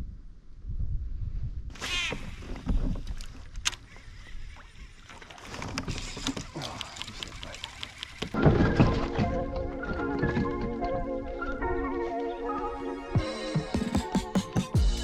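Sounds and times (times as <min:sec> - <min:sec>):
wind rumbling on microphone: 0:00.0 - 0:11.9
water splashing: 0:04.0 - 0:11.6.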